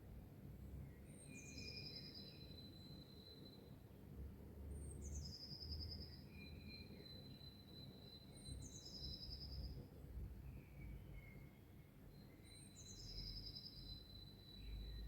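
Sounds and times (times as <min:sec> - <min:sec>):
lower bird chirps: 0:04.8 - 0:09.8, 0:10.5 - 0:15.0.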